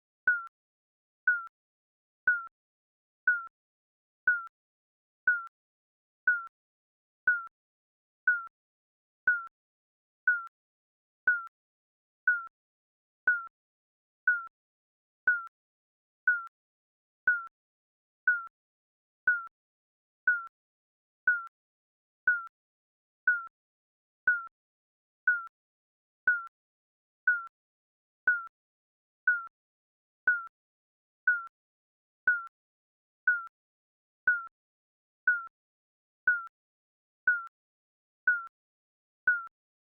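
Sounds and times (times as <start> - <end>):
electronic timer beeps: 0.3 - 0.5, 1.3 - 1.5, 2.3 - 2.5, 3.3 - 3.5, 4.3 - 4.5, 5.3 - 5.5, 6.3 - 6.5, 7.3 - 7.5, 8.3 - 8.5, 9.3 - 9.5, 10.3 - 10.5, 11.3 - 11.5, 12.3 - 12.5, 13.3 - 13.5, 14.3 - 14.5, 15.3 - 15.5, 16.3 - 16.5, 17.3 - 17.5, 18.3 - 18.5, 19.3 - 19.5, 20.3 - 20.5, 21.3 - 21.5, 22.3 - 22.5, 23.3 - 23.5, 24.3 - 24.5, 25.3 - 25.5, 26.3 - 26.5, 27.3 - 27.5, 28.3 - 28.5, 29.3 - 29.5, 30.3 - 30.5, 31.3 - 31.5, 32.3 - 32.5, 33.3 - 33.5, 34.3 - 34.5, 35.3 - 35.5, 36.3 - 36.5, 37.3 - 37.5, 38.3 - 38.5, 39.3 - 39.5.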